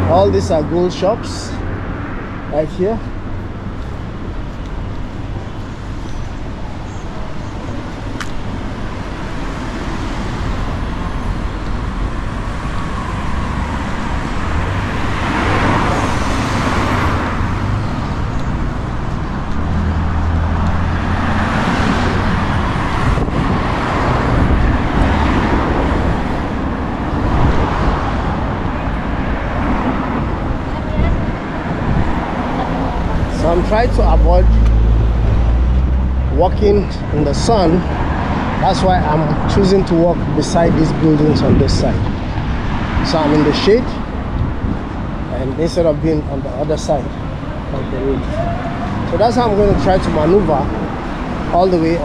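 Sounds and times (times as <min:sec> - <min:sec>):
city street traffic: 0:00.0 - 0:52.0
vehicles passing: 0:00.0 - 0:52.0.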